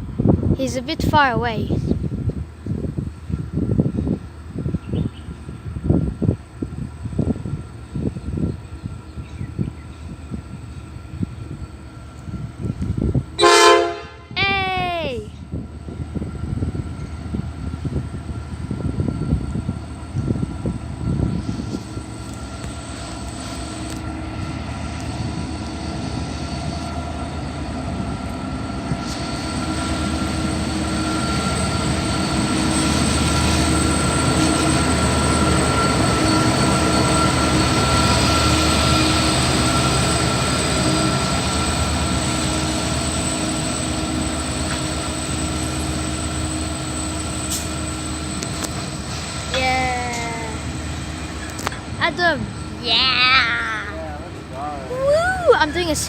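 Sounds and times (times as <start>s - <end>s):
train wagons rumbling on rails: 0.0s - 56.0s.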